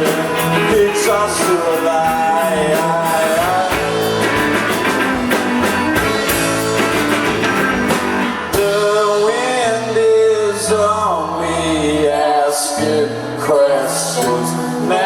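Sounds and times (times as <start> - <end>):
drums keeping a beat: 0.0 - 10.0
bass: 0.0 - 15.0
electric guitar: 0.0 - 15.0.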